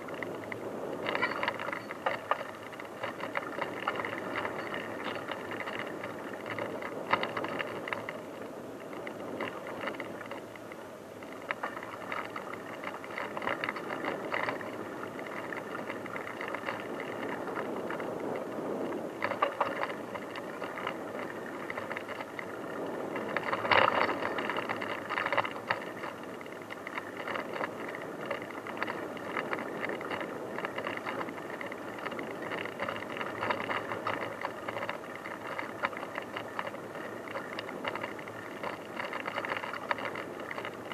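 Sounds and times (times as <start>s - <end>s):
bike jolts: 0.0s - 8.2s
bicycle tyre noise on dirt: 0.0s - 40.9s
bike rattling and clattering: 0.0s - 40.9s.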